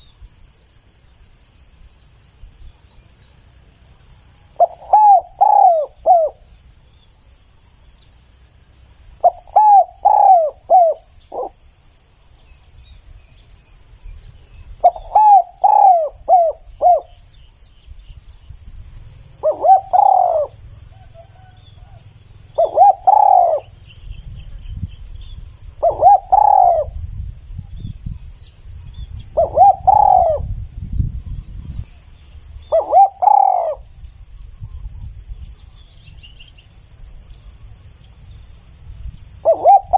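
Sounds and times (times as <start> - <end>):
insects trilling: 0.0 - 39.9
dove cooing: 4.5 - 6.5, 9.2 - 11.6, 14.8 - 17.2, 19.2 - 23.9, 25.8 - 27.0, 29.3 - 30.6, 32.7 - 33.9, 39.4 - 39.9.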